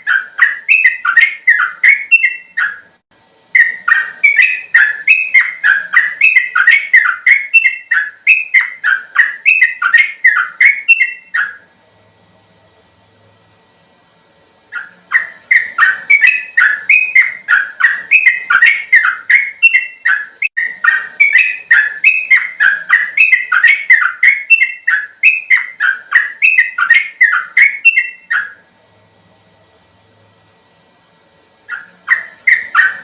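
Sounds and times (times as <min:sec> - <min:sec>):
bulbul singing bubbly whistles: 0:03.5 - 0:11.6, 0:14.7 - 0:28.6.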